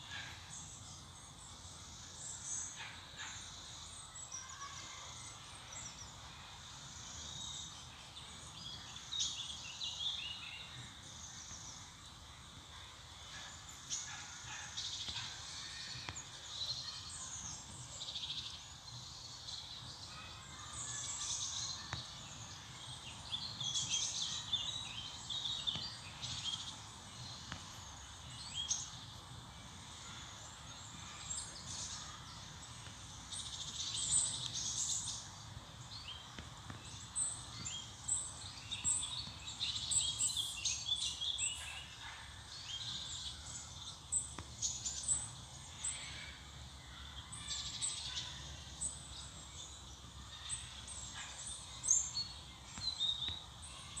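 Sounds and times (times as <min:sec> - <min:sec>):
birds chirping and singing: 0:13.3 - 0:54.0.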